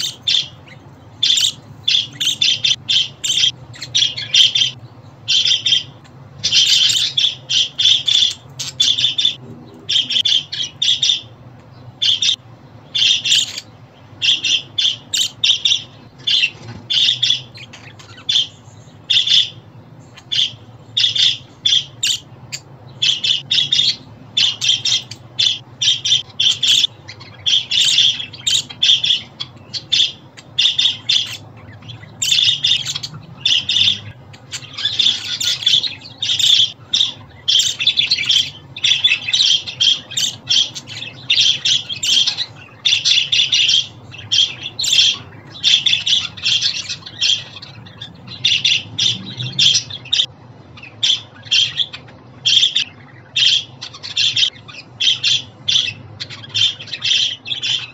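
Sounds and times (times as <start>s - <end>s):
budgerigars chattering and squawking: 0.0s - 57.9s.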